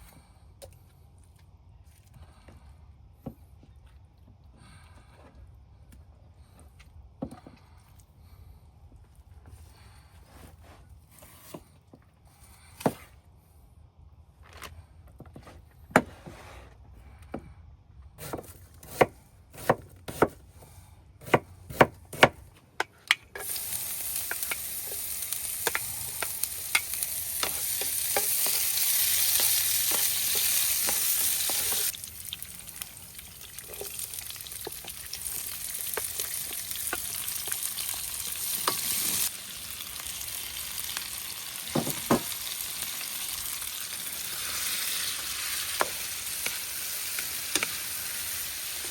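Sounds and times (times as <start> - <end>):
food sizzling in hot oil: 23.4 - 48.9.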